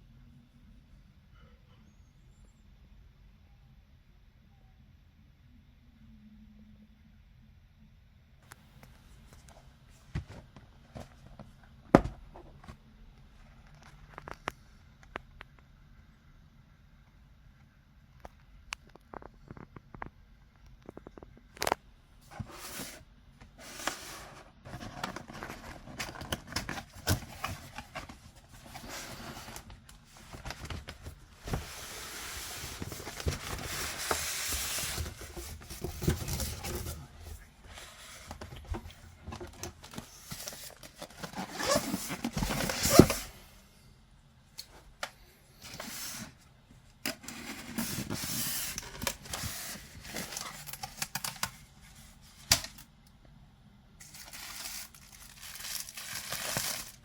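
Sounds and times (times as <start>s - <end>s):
packaging rustling and tearing: 39.3s - 43.3s, 47.2s - 51.7s, 54.0s - 57.0s.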